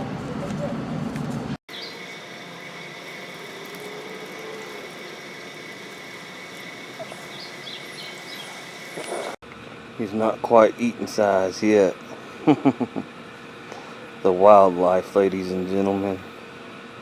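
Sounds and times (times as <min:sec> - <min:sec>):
faint high chirps: 0:01.7 - 0:09.4
thin high whine: 0:01.7 - 0:09.4.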